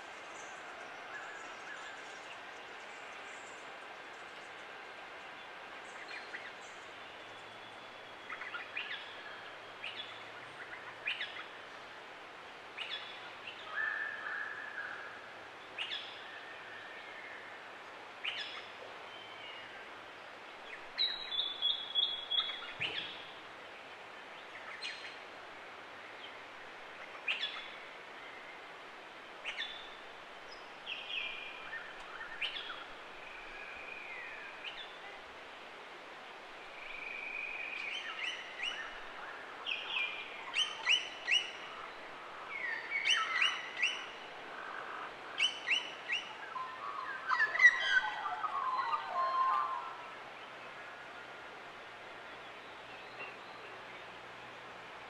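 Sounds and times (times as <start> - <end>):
faint steady hiss: 0.0 - 55.0
forest birds calling: 5.4 - 11.8, 12.8 - 20.0, 20.6 - 25.3, 26.0 - 28.7, 29.4 - 35.4, 36.5 - 55.0.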